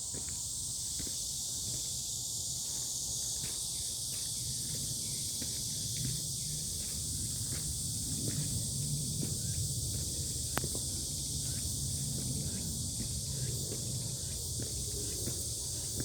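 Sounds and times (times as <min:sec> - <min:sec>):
insect chorus droning: 0:00.0 - 0:16.0
faint light ticks: 0:10.5 - 0:10.8.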